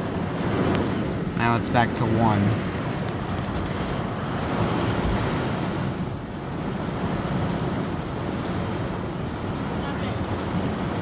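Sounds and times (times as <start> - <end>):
rain on car: 0.0 - 4.3.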